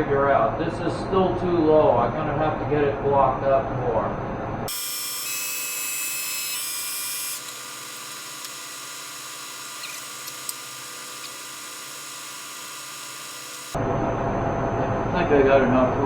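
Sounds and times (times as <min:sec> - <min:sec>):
milling machine motor whine: 0:04.7 - 0:13.8.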